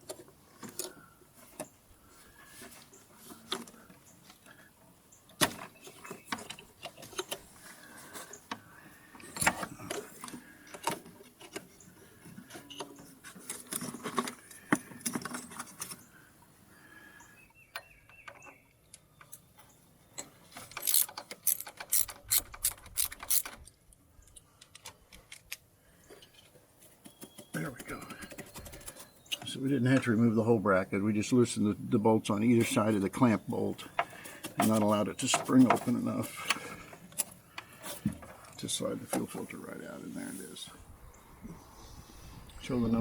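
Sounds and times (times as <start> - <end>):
ratchet wrench clicking: 20.8 - 23.4.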